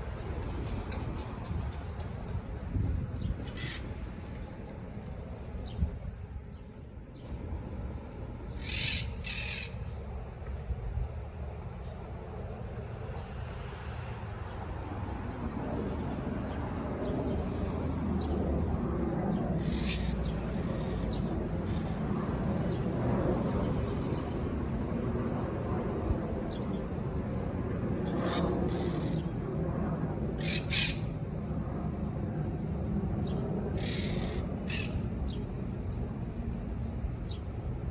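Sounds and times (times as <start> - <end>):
low rumble of wind or traffic: 0.0 - 37.9
birds giving harsh calls: 3.4 - 4.0, 8.5 - 9.9, 19.6 - 21.9, 30.4 - 31.2, 33.8 - 35.0.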